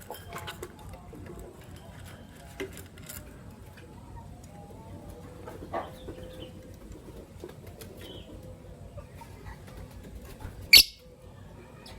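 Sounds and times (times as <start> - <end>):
lovebird calls: 10.7 - 11.0.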